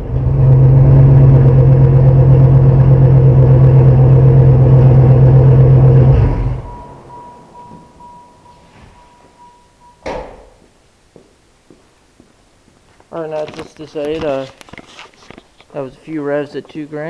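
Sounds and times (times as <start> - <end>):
car engine revving steadily: 0.0 - 7.2
faint electronic beeps: 6.6 - 10.2.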